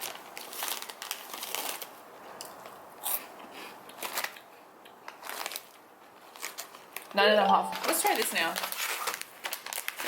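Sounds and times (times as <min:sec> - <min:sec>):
crunchy snack being chewed: 0:00.0 - 0:07.1.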